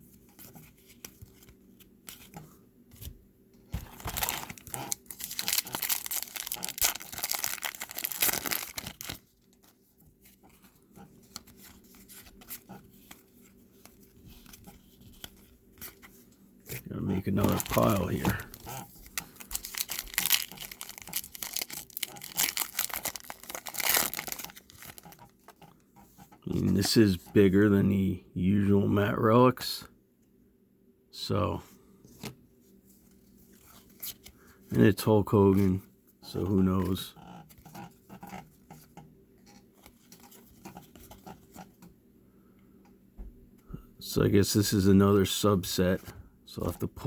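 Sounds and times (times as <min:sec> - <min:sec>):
trading cards clicking and rustling: 0:03.8 - 0:09.7, 0:16.7 - 0:25.6.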